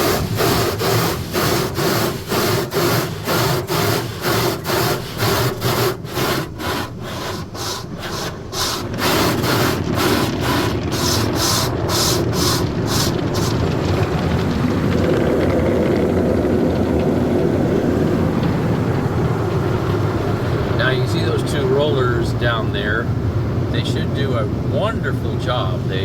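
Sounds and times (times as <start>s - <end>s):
car wash brushes swishing: 0.0s - 13.8s.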